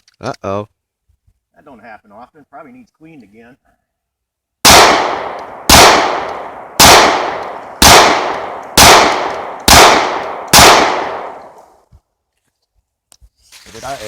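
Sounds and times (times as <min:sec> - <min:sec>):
pistol shots with echo: 0:04.6 - 0:11.6.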